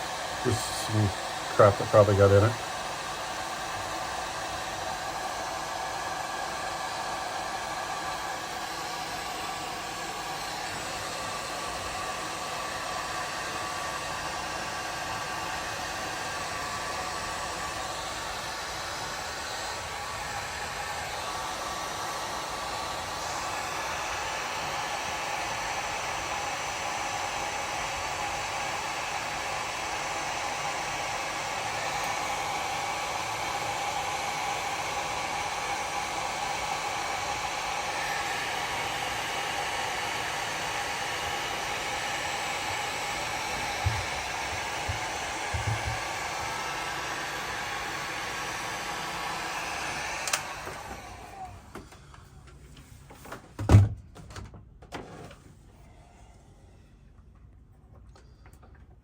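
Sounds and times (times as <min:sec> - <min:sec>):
heat gun blowing hiss: 0:00.0 - 0:51.7.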